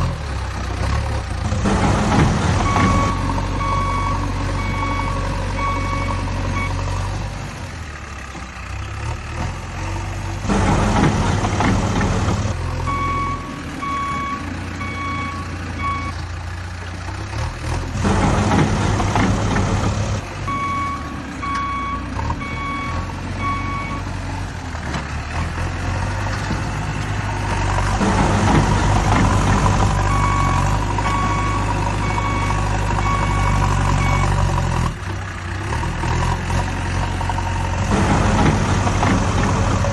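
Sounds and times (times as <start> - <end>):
low engine hum: 0.0 - 39.9
reversing alarm beeping: 2.5 - 7.0, 12.8 - 16.2, 20.5 - 24.2, 28.4 - 34.6.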